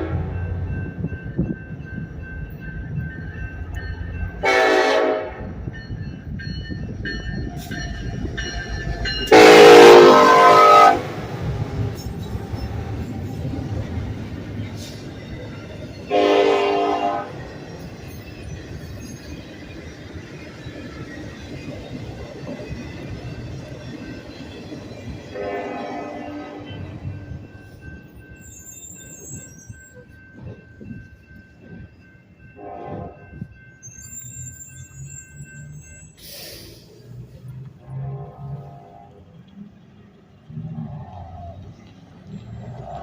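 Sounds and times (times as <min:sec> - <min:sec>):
locomotive horn blasts: 0:00.0 - 0:00.4, 0:04.4 - 0:05.5, 0:09.3 - 0:11.2, 0:16.1 - 0:17.4, 0:25.3 - 0:27.0, 0:32.6 - 0:33.3, 0:37.8 - 0:39.2
passing freight train rumble: 0:00.0 - 0:43.0.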